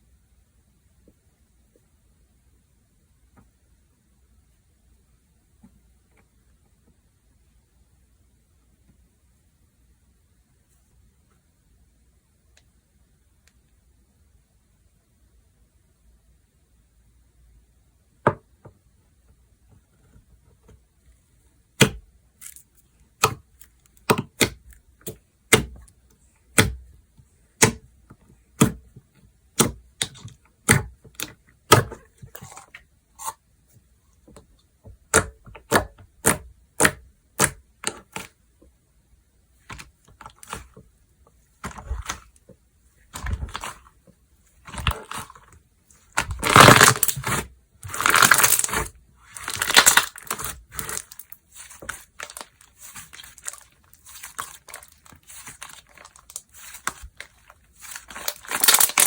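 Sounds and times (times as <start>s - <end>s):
slime crunching and squishing: 21.8s - 25.9s, 29.6s - 33.3s, 35.0s - 38.4s, 41.6s - 42.4s, 43.1s - 44.0s, 44.6s - 59.0s.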